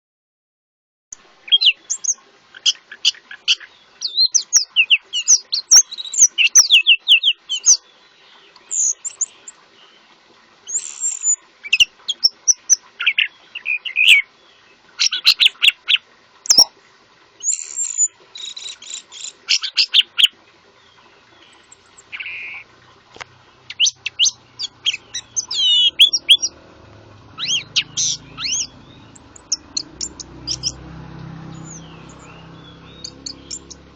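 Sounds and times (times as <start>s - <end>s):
songbird singing: 1.4s - 10.1s, 10.7s - 16.8s, 17.4s - 33.9s.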